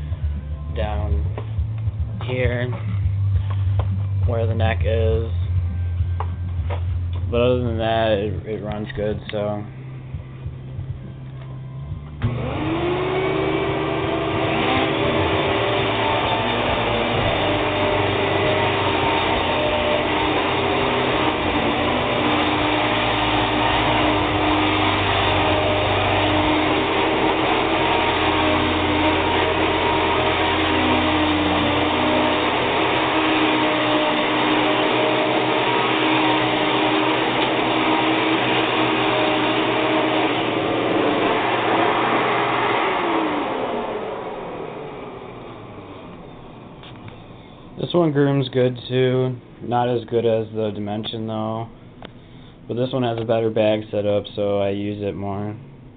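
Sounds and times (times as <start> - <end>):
vacuum cleaner motor whine: 7.7 - 48.9
motor winding down: 11.1 - 48.4.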